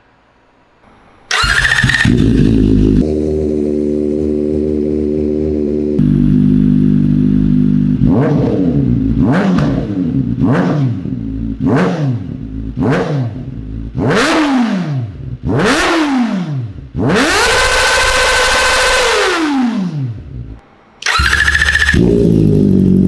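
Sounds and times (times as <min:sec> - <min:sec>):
motorcycle engine revving: 0:00.9 - 0:23.0.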